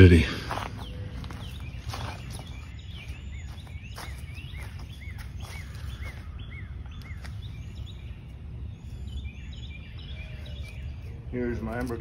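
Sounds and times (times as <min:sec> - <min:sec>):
steady low rumble: 0:00.0 - 0:11.6
songbird whistling: 0:00.8 - 0:08.2.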